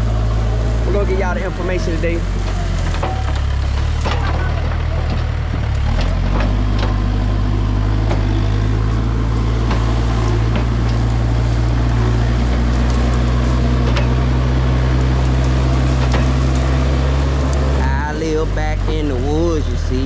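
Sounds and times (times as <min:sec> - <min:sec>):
backhoe engine running: 0:00.0 - 0:20.0
brush cracking and clicking: 0:08.5 - 0:18.0.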